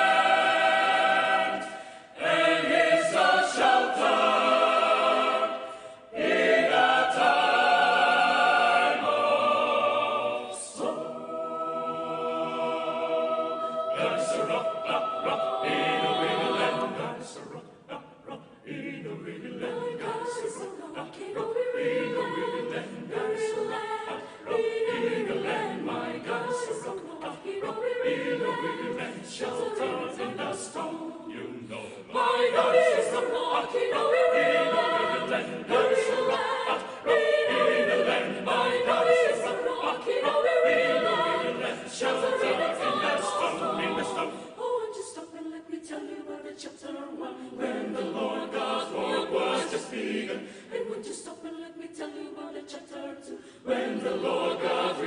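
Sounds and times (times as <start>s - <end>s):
choir singing a cappella: 0.0s - 55.0s.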